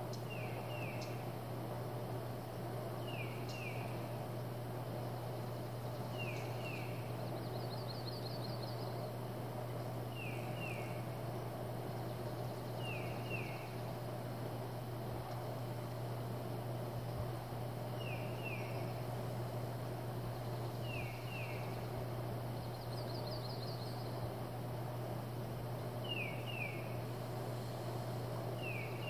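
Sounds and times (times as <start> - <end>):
constant low hum: 0.0 - 29.0
steady outdoor noise: 0.0 - 29.0.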